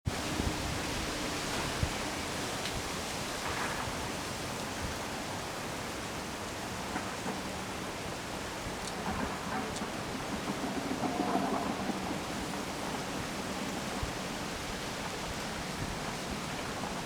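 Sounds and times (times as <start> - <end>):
strong wind blowing: 0.1 - 5.0.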